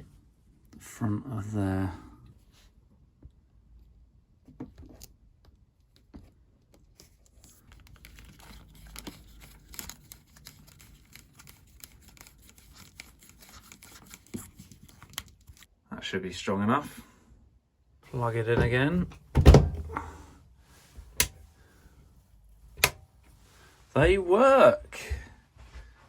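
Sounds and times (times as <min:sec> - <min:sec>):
small handling clicks and scratches: 0:04.5 - 0:15.7.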